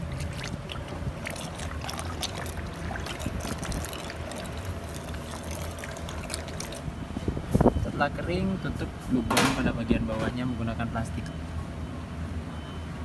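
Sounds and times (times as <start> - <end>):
water draining through a hose: 0.0 - 6.9.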